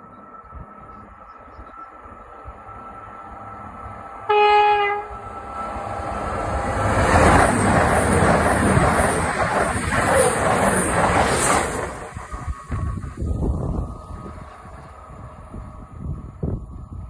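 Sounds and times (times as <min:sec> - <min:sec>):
train passing at speed: 0:00.0 - 0:17.0
train horn blast: 0:04.1 - 0:05.4.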